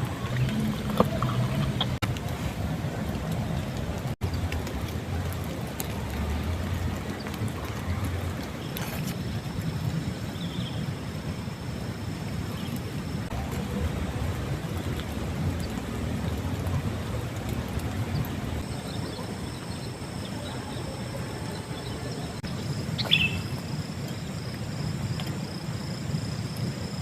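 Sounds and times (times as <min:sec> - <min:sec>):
rain rumbling: 0:00.0 - 0:27.0
faint insect trill: 0:18.7 - 0:27.0.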